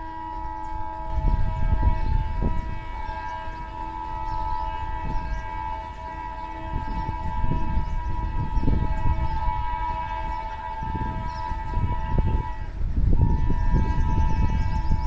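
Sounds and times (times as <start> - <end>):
low rumble of train: 0.0 - 15.0
train horn blast: 0.0 - 15.0.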